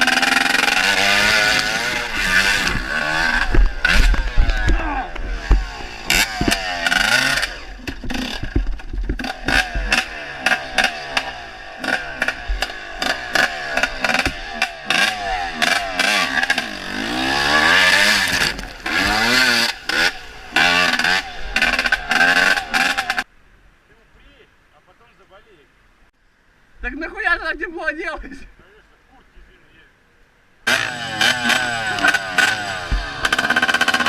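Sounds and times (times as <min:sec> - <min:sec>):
dirt bike engine revving: 0:00.0 - 0:23.3, 0:30.7 - 0:34.0.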